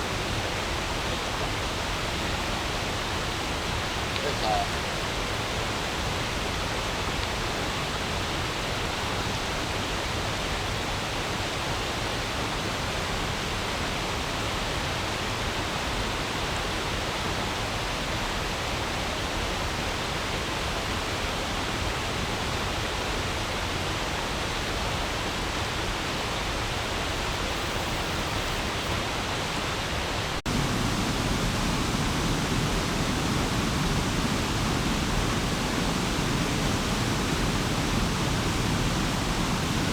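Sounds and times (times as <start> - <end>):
stream flowing over stones: 25.6 - 39.9.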